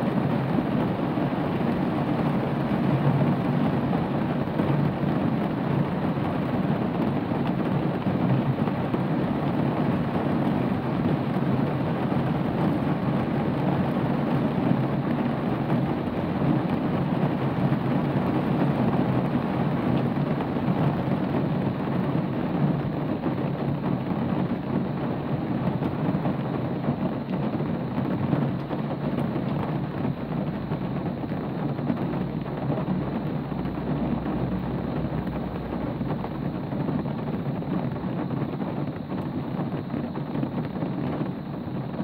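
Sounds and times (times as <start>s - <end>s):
steady rain hiss: 0.0s - 42.0s
low rumble: 29.8s - 38.1s.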